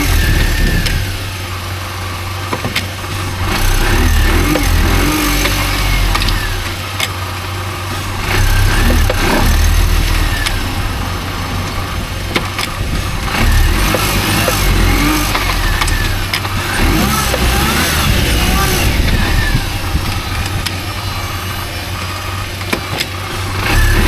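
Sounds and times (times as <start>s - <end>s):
car engine rumbling: 0.0s - 24.0s.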